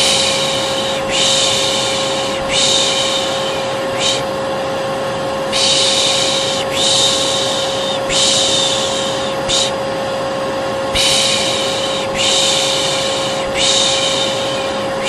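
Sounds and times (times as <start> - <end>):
person shushing: 0.0 - 4.3, 5.5 - 9.8, 11.0 - 15.0
hair dryer whine: 0.0 - 15.0.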